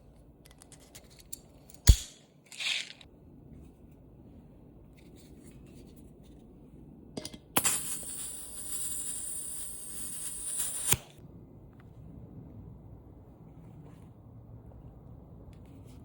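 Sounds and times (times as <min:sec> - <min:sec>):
high hiss of pressurised gas: 0:07.6 - 0:11.1.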